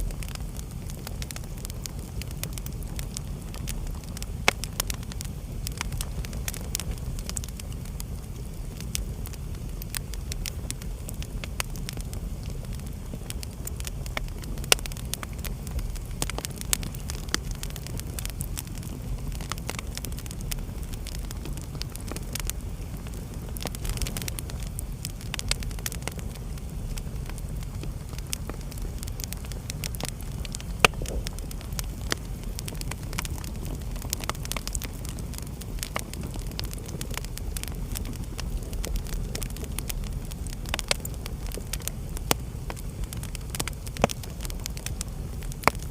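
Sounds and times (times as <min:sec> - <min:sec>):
wood fire burning: 0:00.0 - 0:45.9.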